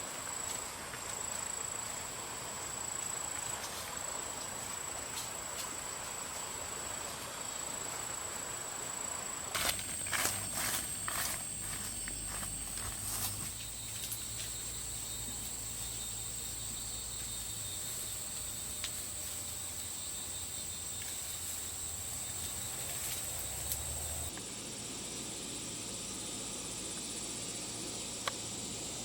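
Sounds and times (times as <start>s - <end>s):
insects shrilling: 9.0s - 29.0s.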